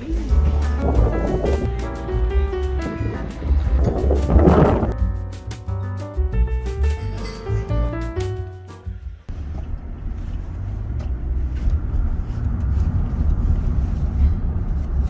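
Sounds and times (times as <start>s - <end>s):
vehicle low rumble: 0.0s - 5.1s, 8.9s - 15.0s
music: 0.0s - 9.3s.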